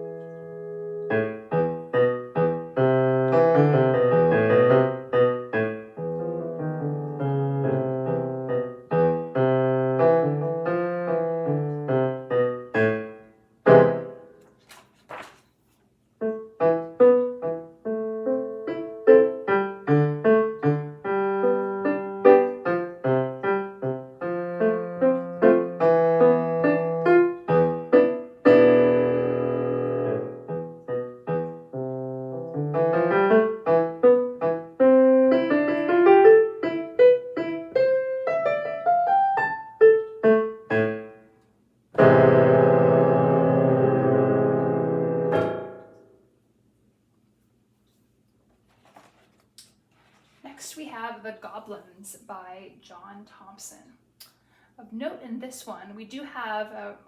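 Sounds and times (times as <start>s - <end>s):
solo piano piece: 0.0s - 15.3s, 16.2s - 46.2s.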